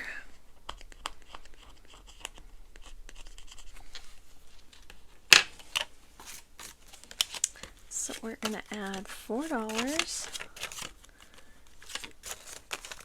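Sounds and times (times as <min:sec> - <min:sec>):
paper rustling and crackling: 0:03.1 - 0:13.0.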